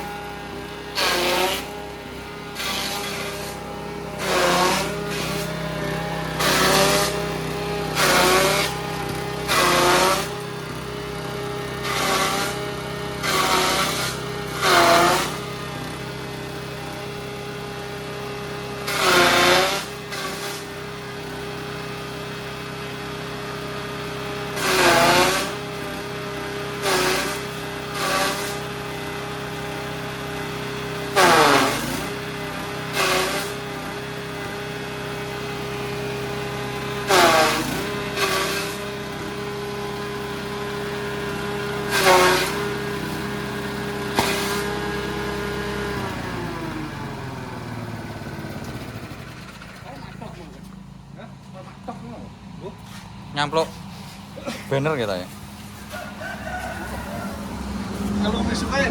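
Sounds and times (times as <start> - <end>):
small engine running: 0.0 - 58.9
chopper chopping material: 0.9 - 1.7, 2.6 - 3.6, 4.2 - 5.6, 6.3 - 8.8, 9.4 - 10.4, 11.8 - 12.6, 13.2 - 15.5, 18.8 - 20.7, 24.6 - 25.9, 26.8 - 28.6, 31.2 - 32.2, 32.9 - 33.6, 37.0 - 38.8, 41.9 - 43.2, 44.1 - 44.8.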